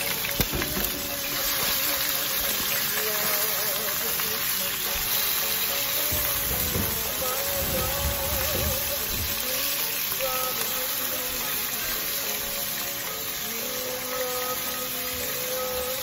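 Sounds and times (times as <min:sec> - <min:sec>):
background music: 0:00.0 - 0:16.0
liver sizzling in hot oil: 0:00.0 - 0:16.0.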